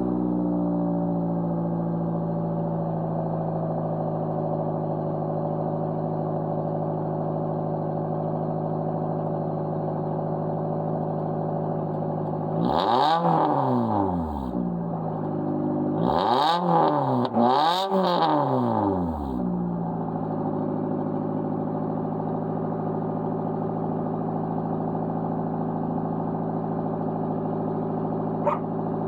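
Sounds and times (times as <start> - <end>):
engine revving: 12.5 - 14.6, 16.0 - 19.4, 28.4 - 28.8
car engine idling: 19.7 - 29.0.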